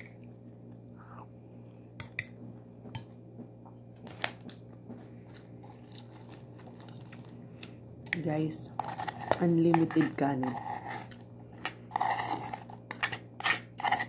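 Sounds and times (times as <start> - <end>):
person chewing food: 0.0 - 8.1
steady low hum: 0.0 - 14.0.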